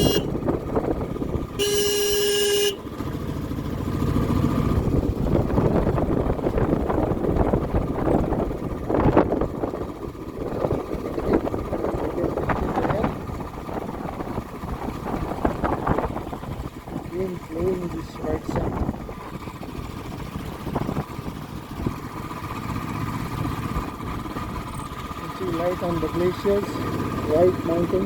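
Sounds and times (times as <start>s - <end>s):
vehicle horn: 0.0s - 0.4s, 1.6s - 3.0s
wind buffeting microphone: 0.0s - 1.6s, 4.6s - 22.3s
motorcycle engine rumble: 0.0s - 28.0s.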